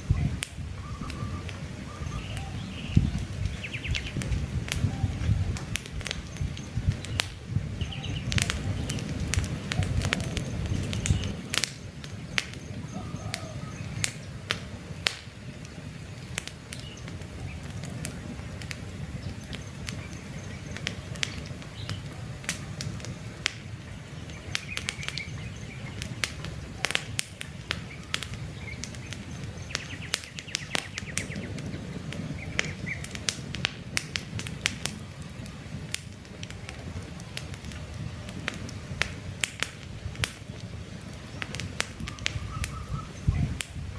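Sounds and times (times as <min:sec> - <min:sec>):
bird chirps: 0:00.0 - 0:04.2, 0:06.2 - 0:14.3, 0:23.9 - 0:26.9, 0:27.8 - 0:33.1, 0:41.3 - 0:43.6
campfire crackling and popping: 0:00.0 - 0:43.9
low rumble of flame: 0:00.0 - 0:43.9.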